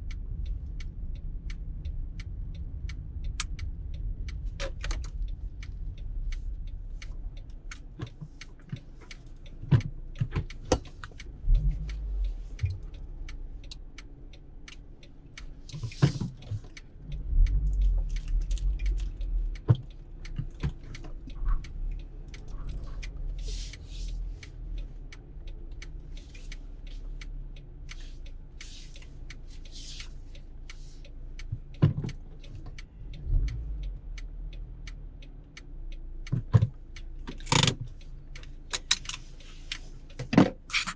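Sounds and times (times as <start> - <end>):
small clicks and rattles: 0.0 - 27.0, 36.2 - 40.9
car cabin rumble: 0.0 - 35.2.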